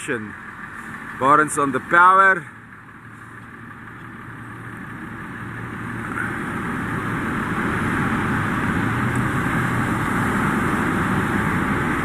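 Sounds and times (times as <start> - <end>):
outboard motor drone: 0.0 - 12.0.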